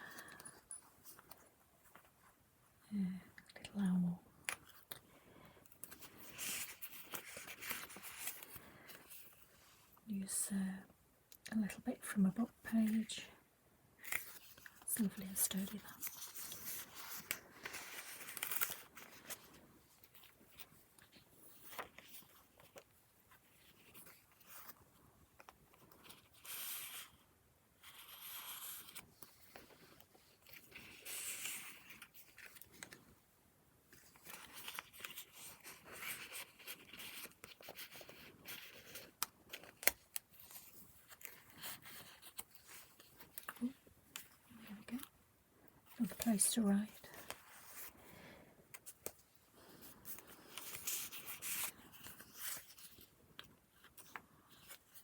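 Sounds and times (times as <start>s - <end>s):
paper pages rustling: 5.7s - 9.6s, 14.0s - 24.8s, 27.8s - 33.0s, 33.9s - 45.1s, 45.9s - 48.0s, 48.7s - 55.0s.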